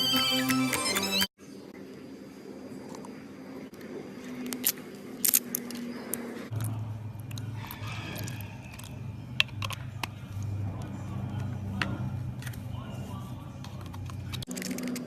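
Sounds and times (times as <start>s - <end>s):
low steady hum: 5.9s - 15.0s.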